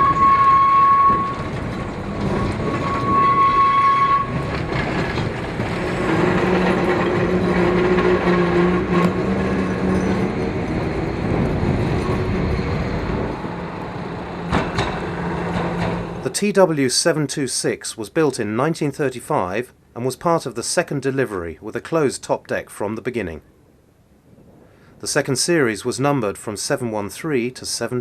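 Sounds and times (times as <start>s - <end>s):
tram horn: 0.0s - 16.3s
tram rumbling: 0.0s - 28.0s.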